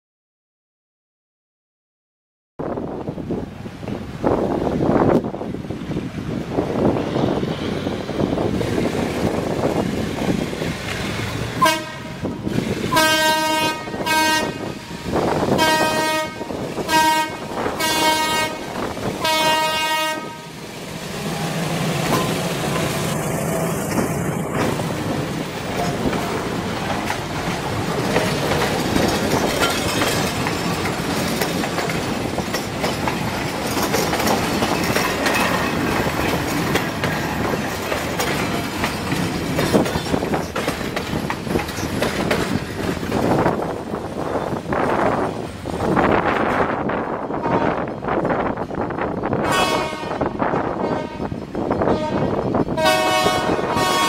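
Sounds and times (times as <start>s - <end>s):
train rumble and wheel clatter: 2.6s - 54.0s
diesel locomotive engine droning: 2.8s - 54.0s
locomotive horn blasts: 11.6s - 20.6s, 47.4s - 47.9s, 49.4s - 54.0s.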